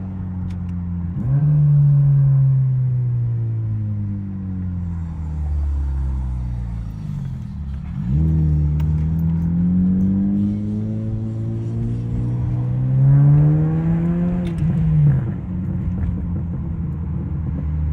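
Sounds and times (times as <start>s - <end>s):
car engine revving through exhaust: 1.0s - 3.8s, 4.6s - 17.9s.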